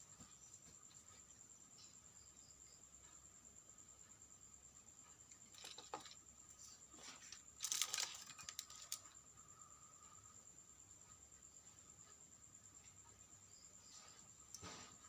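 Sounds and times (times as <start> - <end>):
small parts clicking and rustling: 5.0 - 9.3.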